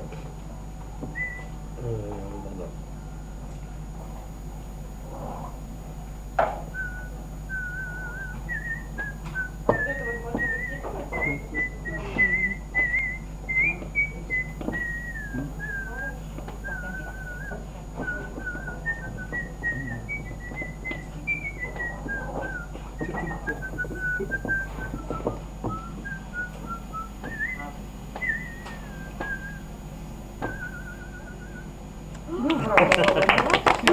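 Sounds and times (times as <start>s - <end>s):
person whistling a slow tune: 1.1s - 2.0s, 6.6s - 29.7s, 30.4s - 31.7s.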